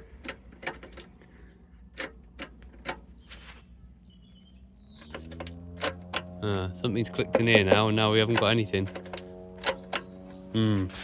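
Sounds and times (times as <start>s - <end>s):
ignition key and switch clicks: 0.0s - 3.1s, 5.0s - 6.4s, 7.1s - 10.5s
brief rustle: 3.2s - 3.7s.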